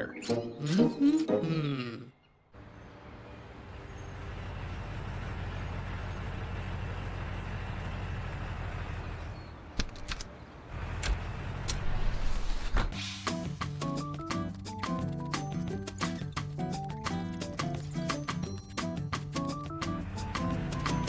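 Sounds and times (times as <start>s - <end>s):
cartoon vehicle engine running: 13.8s - 21.0s.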